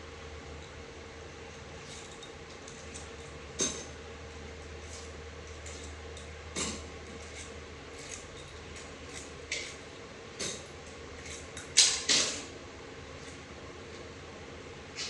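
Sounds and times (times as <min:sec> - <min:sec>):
faint steady hum: 0:00.0 - 0:15.0
metal tools clinking: 0:07.3 - 0:08.9.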